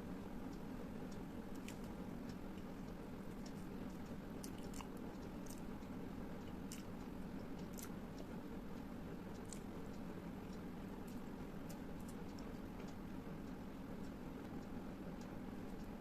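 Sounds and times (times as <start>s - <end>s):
low background hum: 0.0s - 16.0s
person chewing food: 1.5s - 2.0s, 2.6s - 8.3s, 9.3s - 10.0s.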